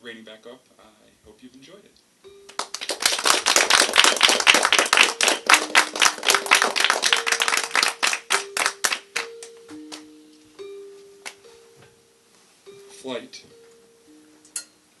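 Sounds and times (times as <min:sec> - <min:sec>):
audience applauding: 0:02.5 - 0:09.3.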